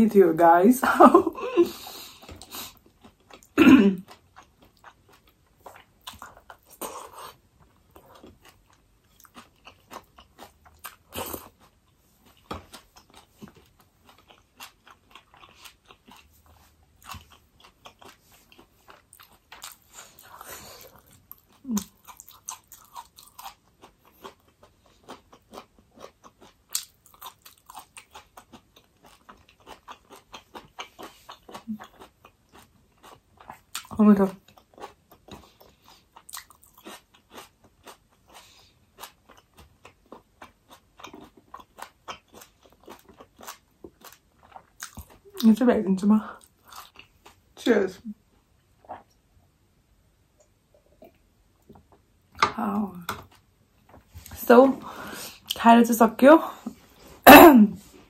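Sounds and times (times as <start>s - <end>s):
person chewing crunchy food: 1.6s - 45.5s, 46.4s - 47.6s.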